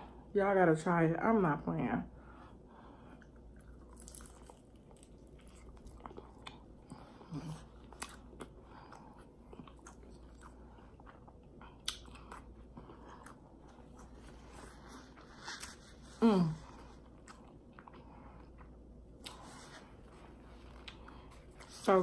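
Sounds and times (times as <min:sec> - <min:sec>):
crunchy chewing: 0:03.2 - 0:16.0.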